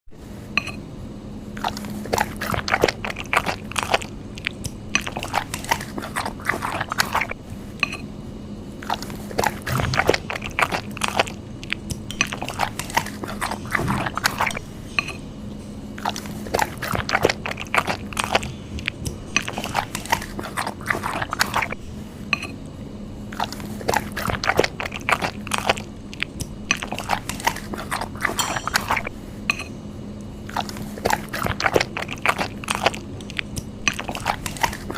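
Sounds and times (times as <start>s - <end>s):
faint steady hum: 0.1s - 34.9s
mouth clicks and smacks: 1.6s - 7.4s, 8.8s - 14.6s, 16.0s - 21.8s, 23.4s - 29.1s, 30.5s - 34.9s
person chewing noodles: 1.6s - 7.8s, 8.8s - 15.2s, 15.8s - 22.1s, 23.3s - 29.2s, 30.2s - 34.9s.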